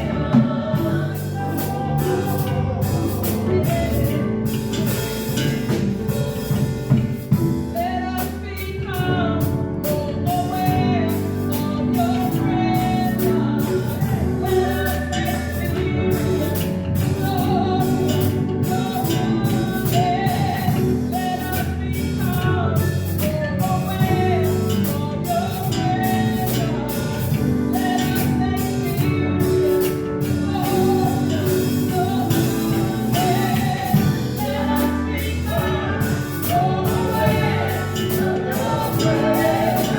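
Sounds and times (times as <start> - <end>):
people singing: 0.0 - 39.9
worship band playing: 0.0 - 39.9.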